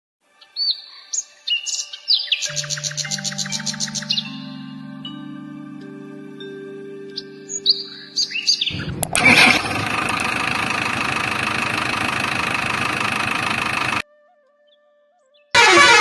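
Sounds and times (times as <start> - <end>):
bird chirps: 0.4 - 4.6, 7.1 - 9.0
engine starting and running: 8.7 - 14.0, 15.6 - 16.0.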